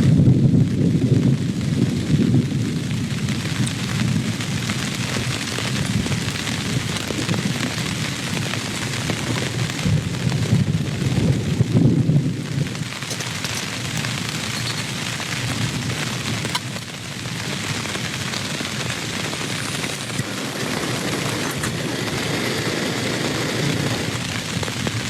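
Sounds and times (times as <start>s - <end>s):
heavy rain: 0.0s - 25.0s
thunder rumbling: 0.0s - 25.0s
sharp water drips: 2.6s - 11.4s, 12.2s - 20.3s.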